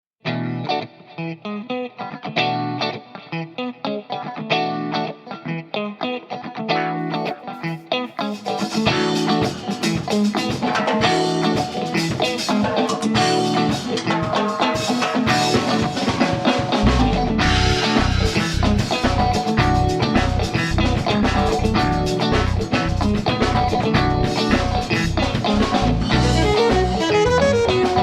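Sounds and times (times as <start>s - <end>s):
rock guitar: 0.2s - 28.0s
drums: 7.2s - 28.0s
heavy bass: 16.8s - 28.0s.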